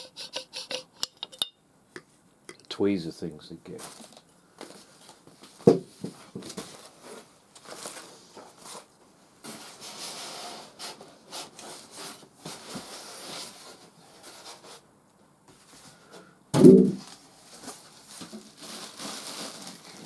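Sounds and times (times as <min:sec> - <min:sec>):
packaging rubbing and scraping: 0:00.0 - 0:01.1, 0:06.6 - 0:14.8, 0:17.0 - 0:20.0
sharp knock: 0:16.6 - 0:17.0.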